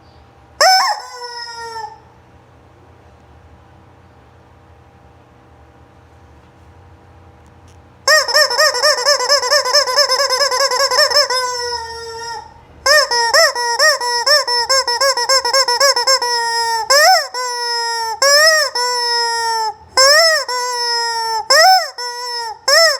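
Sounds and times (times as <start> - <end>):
rubber chicken toy squeaking: 0.6 - 2.0, 8.1 - 22.9.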